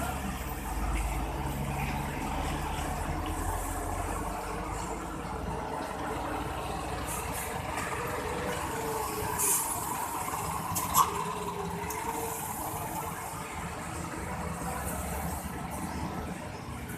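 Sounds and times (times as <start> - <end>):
truck engine running low: 0.0 - 16.9
air brakes hissing: 9.2 - 10.0.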